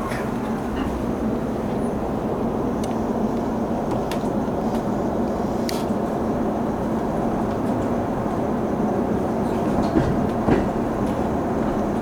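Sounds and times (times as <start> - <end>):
train wheels rumbling: 0.0 - 12.0.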